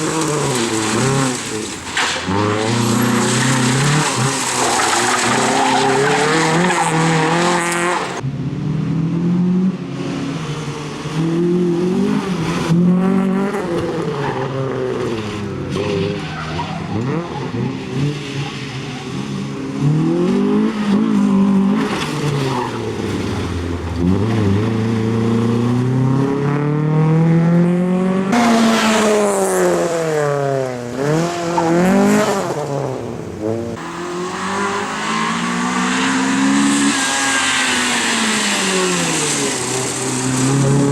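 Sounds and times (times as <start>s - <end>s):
tyres squealing: 0.2s - 8.2s, 33.8s - 40.1s
car engine revving hard: 33.4s - 40.9s.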